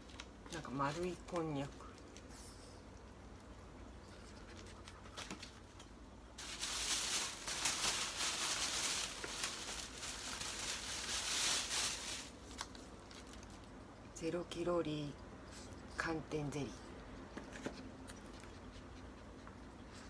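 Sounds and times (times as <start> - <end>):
plastic packaging crinkling: 4.6 - 13.8.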